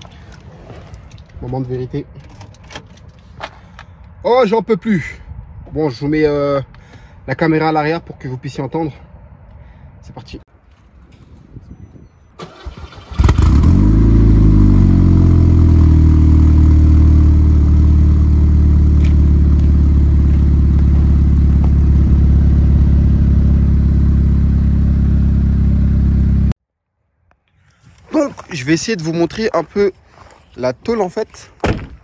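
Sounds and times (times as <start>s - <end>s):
car engine starting and idling: 12.4s - 26.6s
deep exhaust note: 13.2s - 26.6s.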